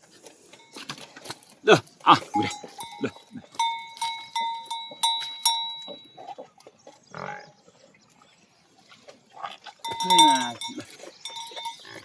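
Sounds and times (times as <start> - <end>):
metal animal bell clanging: 2.1 - 6.2, 9.8 - 12.0.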